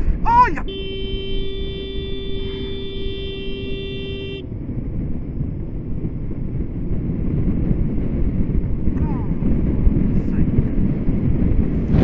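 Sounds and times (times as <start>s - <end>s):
wind and road noise: 0.0s - 12.0s
vehicle horn: 0.6s - 4.5s.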